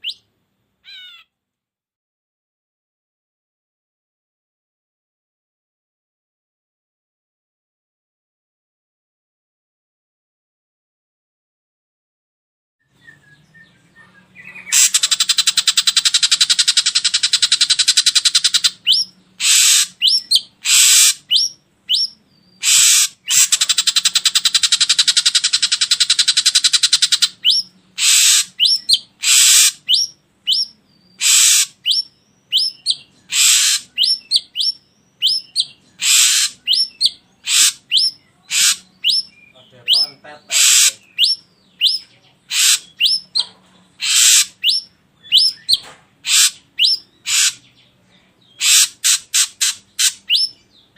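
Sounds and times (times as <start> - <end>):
bird rattling calls: 14.7 - 30.1, 31.2 - 32.0, 33.3 - 34.1, 36.0 - 36.8, 37.4 - 39.2, 40.5 - 41.3, 41.9 - 44.8, 45.4 - 47.7, 48.6 - 50.5
bird whistled notes: 44.1 - 45.8.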